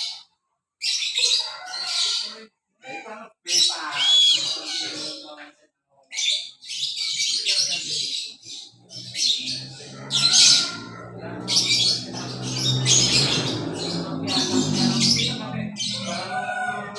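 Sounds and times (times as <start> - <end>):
hornbill harsh raspy squawks: 6.2 - 16.3
low steady drone: 10.7 - 16.3.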